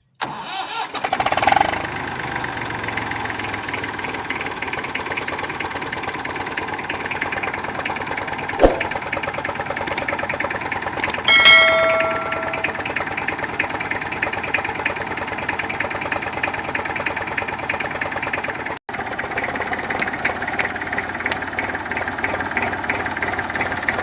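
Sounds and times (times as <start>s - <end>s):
vehicle engine idling: 1.6s - 24.0s
sharp click: 8.6s - 8.9s, 9.9s - 10.1s
short steady tone: 11.3s - 13.0s.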